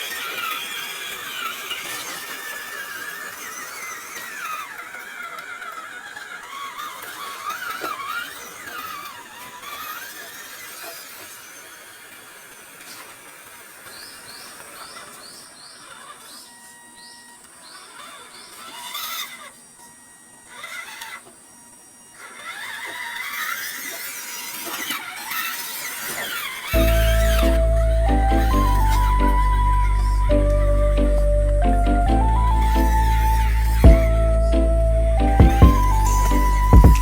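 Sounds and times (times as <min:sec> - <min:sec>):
electric motor and gearbox whine: 0:00.0 - 0:37.0.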